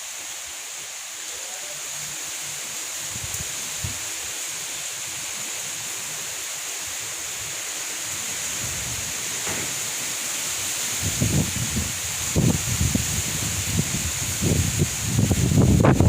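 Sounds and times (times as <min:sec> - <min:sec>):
heavy rain: 0:00.0 - 0:16.0
wind buffeting microphone: 0:10.8 - 0:16.0
wind rushing: 0:10.8 - 0:16.0.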